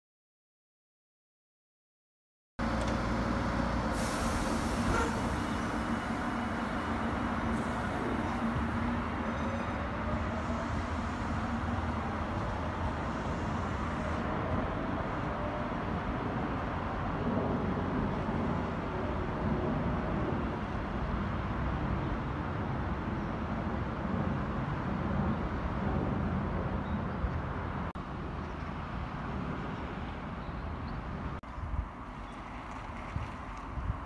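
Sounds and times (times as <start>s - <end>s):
electric train rumble: 2.6s - 22.9s
road traffic noise: 2.6s - 34.0s.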